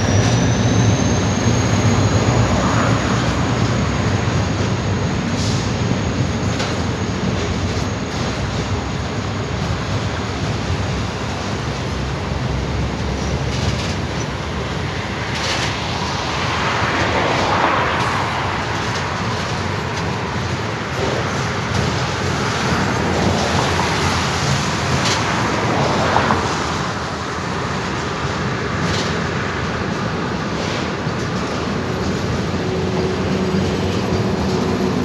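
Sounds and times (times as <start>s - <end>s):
train wheels rumbling on rails: 0.0s - 35.0s
sharp rail clicks: 12.5s - 25.4s.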